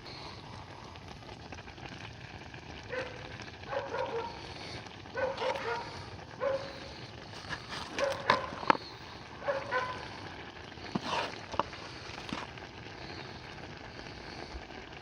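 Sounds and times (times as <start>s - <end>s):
dog yipping: 2.9s - 4.3s, 5.2s - 6.7s, 8.0s - 8.5s, 9.4s - 10.0s.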